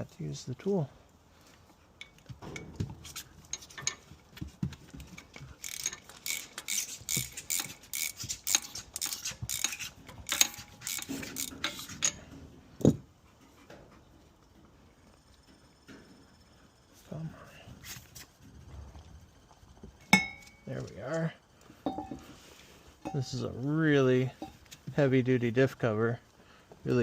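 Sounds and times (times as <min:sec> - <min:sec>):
ratchet wrench clicking: 0:05.6 - 0:12.2
metal tool clinks: 0:20.1 - 0:20.7, 0:21.8 - 0:22.2, 0:23.0 - 0:23.4.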